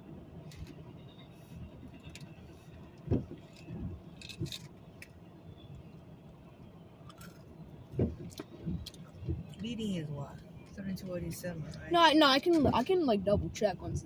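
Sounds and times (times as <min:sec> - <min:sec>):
freight train rumble: 0:00.0 - 0:14.0
train knocks and clunks: 0:03.0 - 0:04.6, 0:07.9 - 0:09.5.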